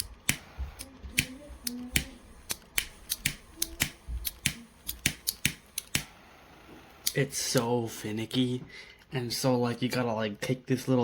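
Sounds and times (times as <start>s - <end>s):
lighter spark igniter clicking: 0.0s - 6.2s, 7.0s - 7.7s.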